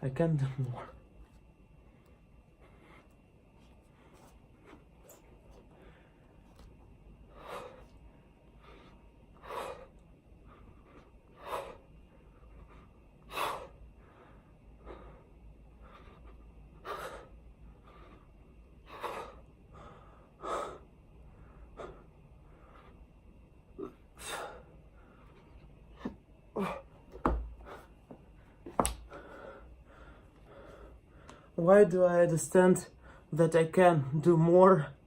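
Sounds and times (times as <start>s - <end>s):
man breathing hard: 7.2s - 23.1s, 23.8s - 31.6s.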